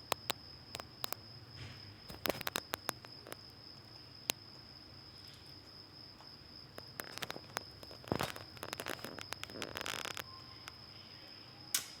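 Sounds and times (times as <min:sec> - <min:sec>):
crickets chirring: 0:00.0 - 0:12.0
scratchy rustles: 0:07.0 - 0:10.2
sharp clicks: 0:11.7 - 0:12.0.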